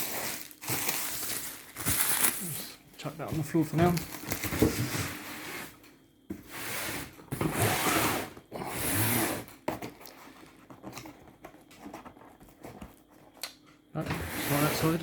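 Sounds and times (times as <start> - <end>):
cardboard box rustling and scraping: 0.0 - 2.5, 3.8 - 5.8, 14.1 - 15.0.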